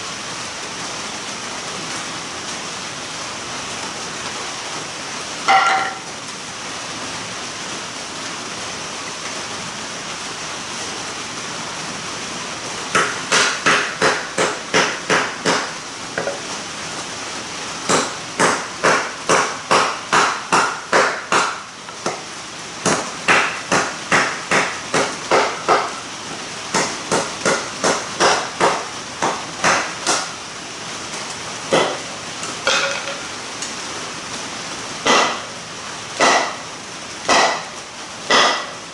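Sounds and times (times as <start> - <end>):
steady rain: 0.0 - 38.9
sharp evenly spaced knocks: 12.9 - 16.3, 17.9 - 26.0, 26.7 - 30.3, 31.7 - 33.2, 35.0 - 35.5, 36.2 - 36.6, 37.3 - 37.7, 38.3 - 38.8.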